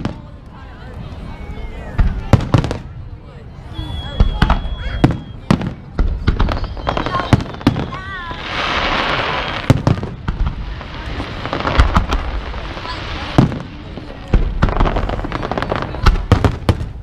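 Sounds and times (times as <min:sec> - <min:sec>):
fireworks bangs: 0:00.0 - 0:00.4, 0:01.9 - 0:03.0, 0:03.8 - 0:17.0
fireworks crackling hiss: 0:03.8 - 0:17.0.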